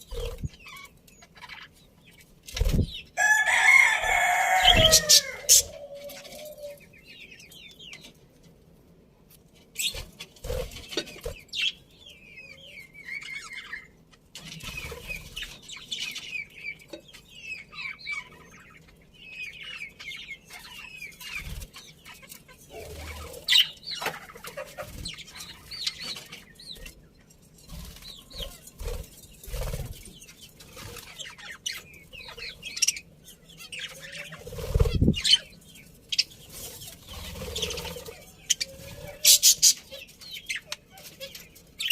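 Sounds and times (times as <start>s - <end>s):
wings fluttering: 0.0s - 0.6s, 2.5s - 6.7s, 27.7s - 31.3s, 34.3s - 35.4s, 36.5s - 39.8s
budgies chirping: 0.0s - 8.1s, 9.8s - 41.9s.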